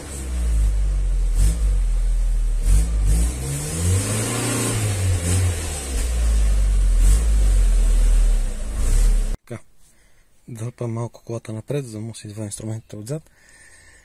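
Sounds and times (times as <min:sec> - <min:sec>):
car engine at low revs: 0:00.0 - 0:09.4.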